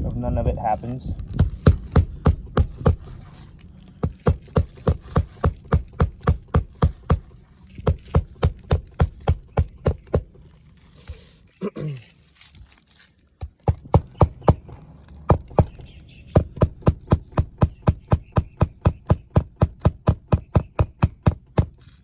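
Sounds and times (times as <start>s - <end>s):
hammer driving nails: 1.3s - 3.2s, 4.0s - 10.4s, 16.4s - 22.0s.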